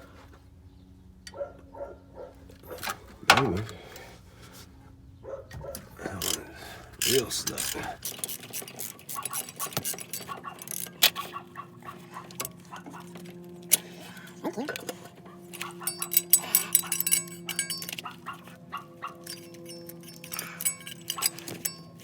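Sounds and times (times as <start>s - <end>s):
steady low hum: 0.2s - 22.0s
ratchet clicking on metal: 5.7s - 13.1s, 15.5s - 22.0s.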